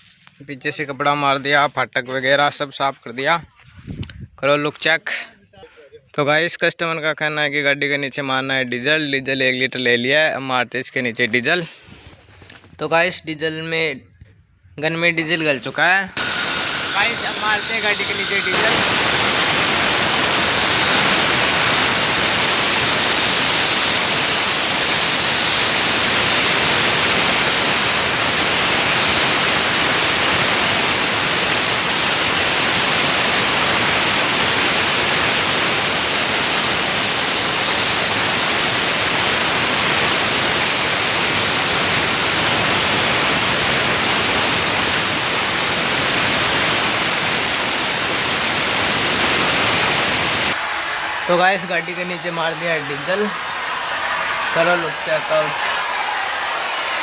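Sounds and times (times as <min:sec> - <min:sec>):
spray gun hissing: 0:16.2 - 0:57.0.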